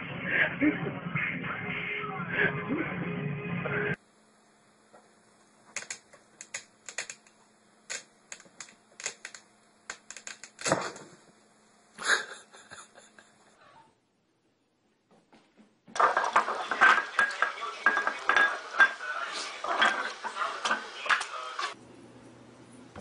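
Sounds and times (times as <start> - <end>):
faint steady hum: 4.0 - 15.2.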